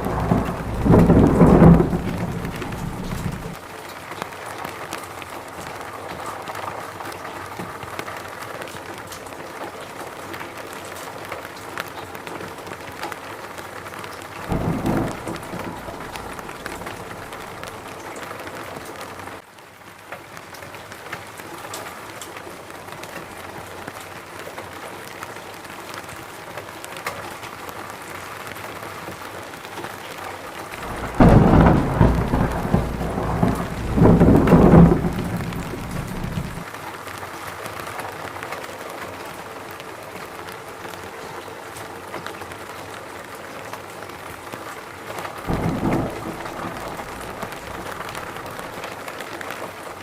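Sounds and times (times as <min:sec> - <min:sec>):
thunder rumbling: 0:00.0 - 0:03.6, 0:14.4 - 0:18.1, 0:30.7 - 0:36.7, 0:45.5 - 0:49.0
rain falling: 0:00.0 - 0:50.0.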